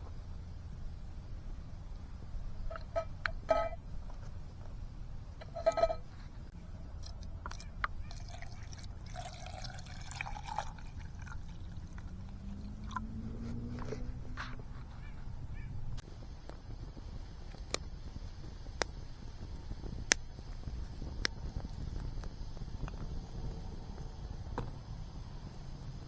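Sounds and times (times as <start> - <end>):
metal cookware clinks: 2.7 - 3.8, 5.4 - 6.1
liquid pouring: 7.0 - 13.1.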